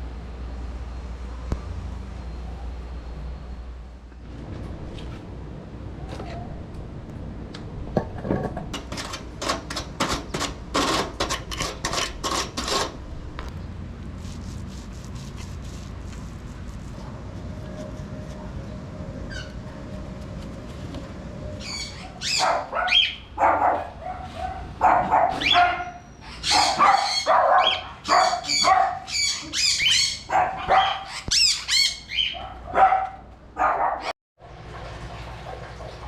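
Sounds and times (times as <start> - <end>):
parrot harsh calls: 21.6 - 23.2, 25.4 - 32.4.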